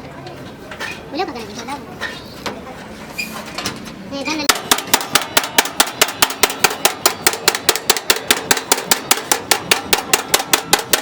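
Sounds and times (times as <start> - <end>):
hammer blows on sheet metal: 4.5 - 11.0.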